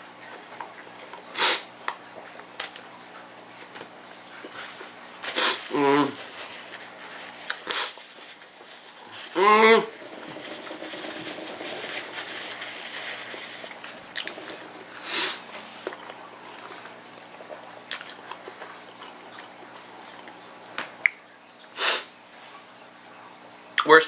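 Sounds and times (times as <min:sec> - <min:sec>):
faint steady hum: 0:00.0 - 0:24.0
person chewing wet mouth noises: 0:13.3 - 0:21.2.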